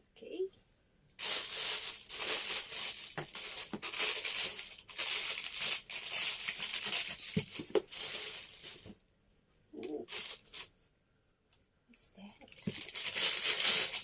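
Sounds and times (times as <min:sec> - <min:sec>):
plastic packaging crinkling: 0:01.2 - 0:09.0, 0:10.1 - 0:10.7, 0:12.5 - 0:14.0.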